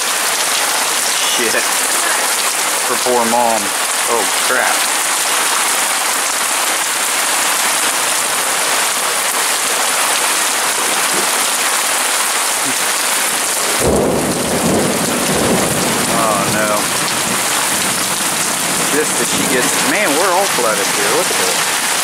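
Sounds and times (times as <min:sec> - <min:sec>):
heavy rain pouring: 0:00.0 - 0:22.0
low thunder rumble: 0:13.8 - 0:19.9.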